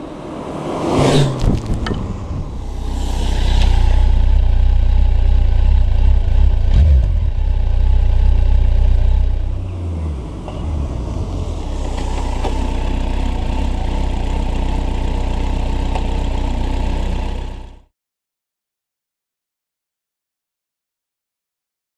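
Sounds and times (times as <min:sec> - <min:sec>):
motorcycle engine running: 0:01.5 - 0:17.9.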